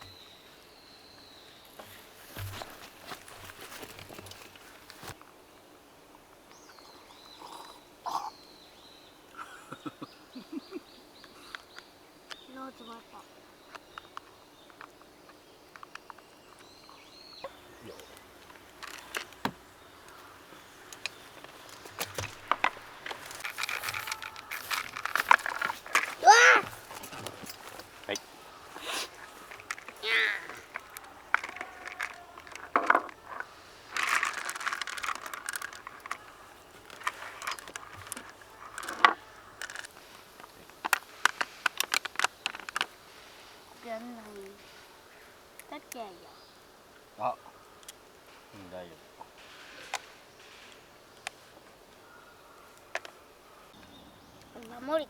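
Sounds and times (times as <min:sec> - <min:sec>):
rustling handling noise: 0:01.4 - 0:05.4, 0:13.7 - 0:45.0
wooden game pieces clicking: 0:20.9 - 0:28.2, 0:28.8 - 0:42.9.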